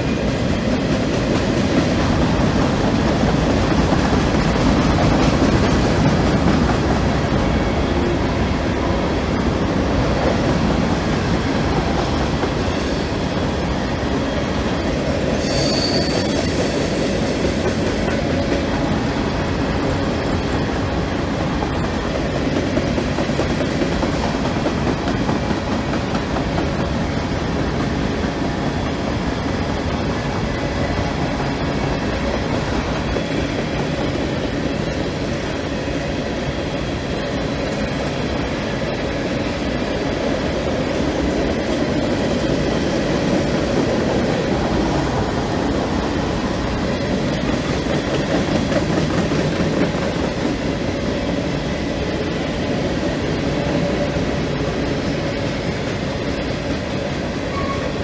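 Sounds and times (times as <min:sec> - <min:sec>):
train wheels rumbling on rail: 0:00.0 - 0:58.0
high metallic squeal: 0:15.4 - 0:18.1.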